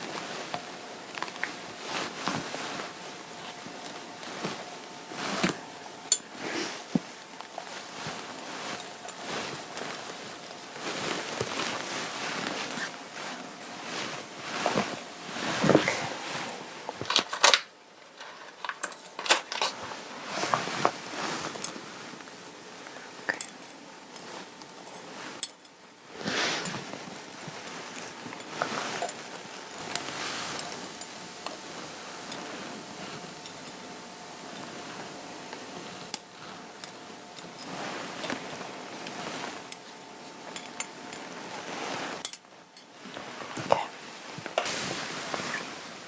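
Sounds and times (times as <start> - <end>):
fabric rustling and rubbing: 0.0 - 22.7, 26.0 - 42.3, 42.9 - 46.0.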